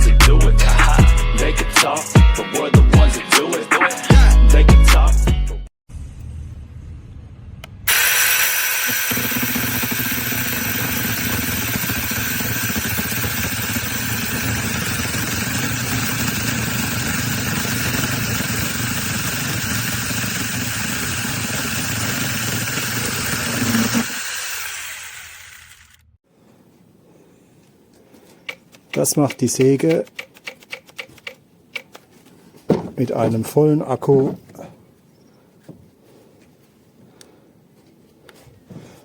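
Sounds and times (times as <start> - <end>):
mini chainsaw motor whine: 7.9 - 26.1.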